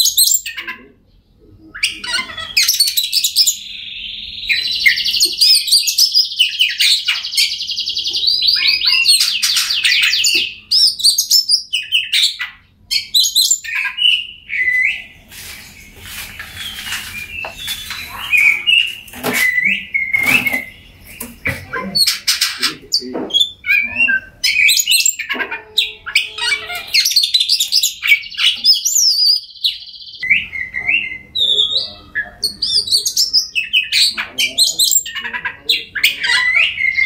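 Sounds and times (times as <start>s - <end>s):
bird singing whistled phrases: 12.9s - 15.1s, 16.5s - 21.3s, 23.3s - 35.2s.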